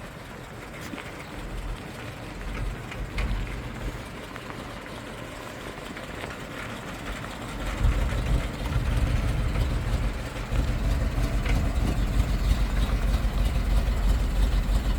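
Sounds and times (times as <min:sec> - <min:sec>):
fire truck engine idling: 0:00.0 - 0:14.9.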